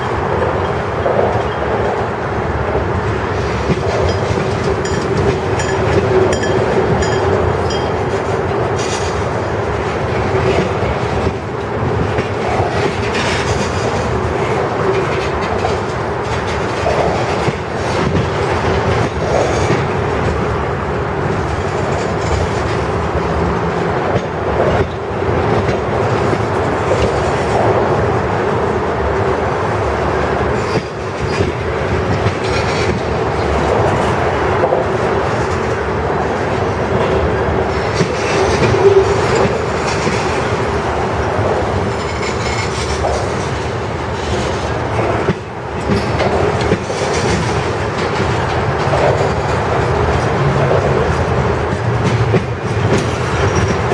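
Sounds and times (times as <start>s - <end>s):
freight train cars rolling past: 0.0s - 53.9s
wheels clicking over rail joints: 3.3s - 28.2s, 29.8s - 53.9s
ringing tone from wheels and rails: 4.0s - 8.3s.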